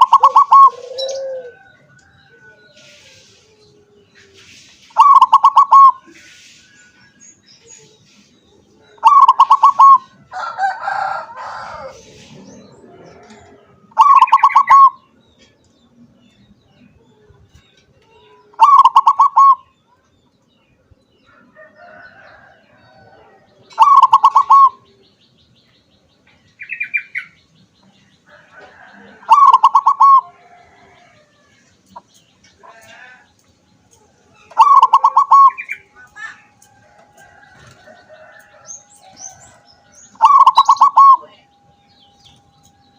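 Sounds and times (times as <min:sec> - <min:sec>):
dove stuttering cooing: 0:00.0 - 0:01.8, 0:05.0 - 0:06.1, 0:09.0 - 0:10.2, 0:11.8 - 0:14.9, 0:18.5 - 0:19.6, 0:23.7 - 0:24.8, 0:28.8 - 0:30.5, 0:34.5 - 0:35.7, 0:40.2 - 0:41.4.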